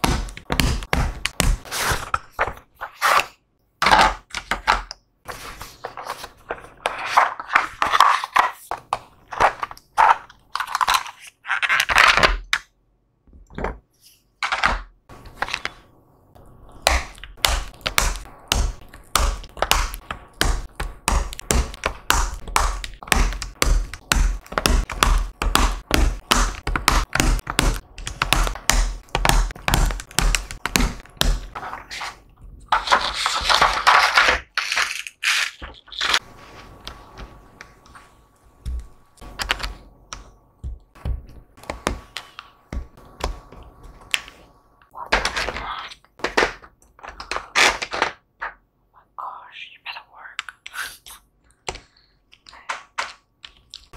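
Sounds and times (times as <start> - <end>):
plastic keyboard clicks and taps: 16.8 - 31.6.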